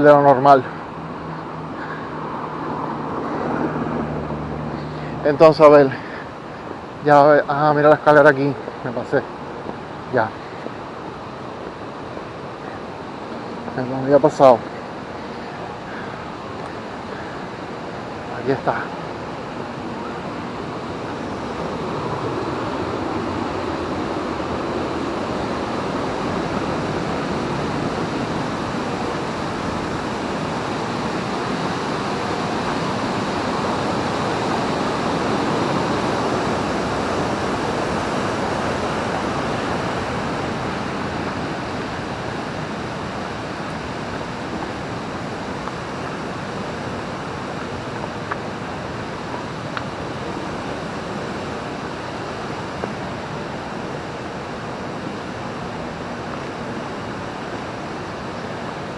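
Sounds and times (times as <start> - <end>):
river water rushing: 0.0 - 58.9.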